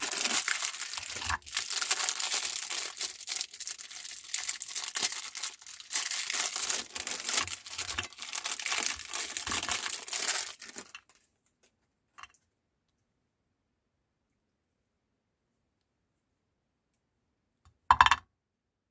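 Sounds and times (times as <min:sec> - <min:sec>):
meat grinder crunching cookies: 0:00.0 - 0:02.9.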